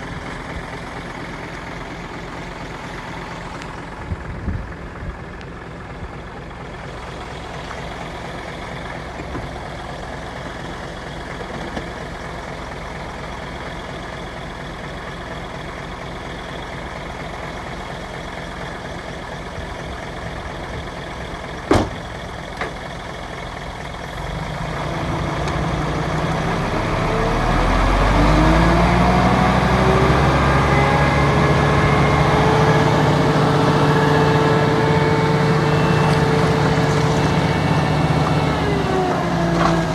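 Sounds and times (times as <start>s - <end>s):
diesel engine running: 0.0s - 39.9s
sharp knock: 21.7s - 22.0s.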